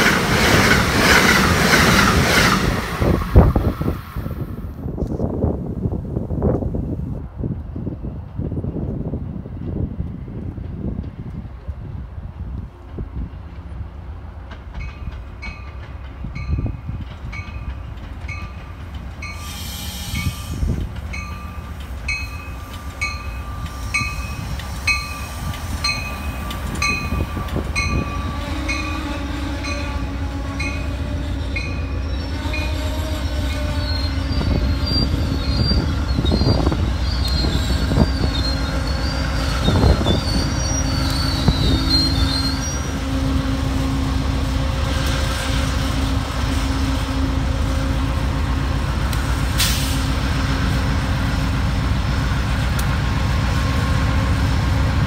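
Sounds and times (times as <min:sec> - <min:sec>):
train wheels rumbling: 0:00.0 - 0:55.0
wheel squeal: 0:31.4 - 0:43.0.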